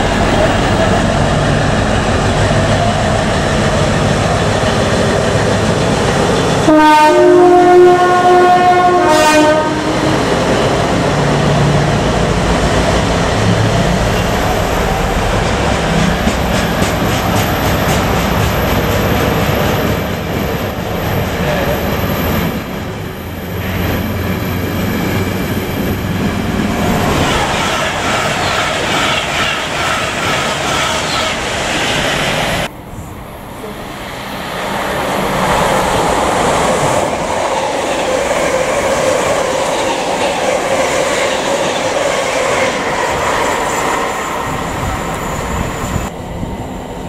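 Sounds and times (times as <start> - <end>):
passing train rumble: 0.0 - 47.0
locomotive two-note horn: 6.7 - 10.1
wheels clacking over rail joints: 23.6 - 32.1.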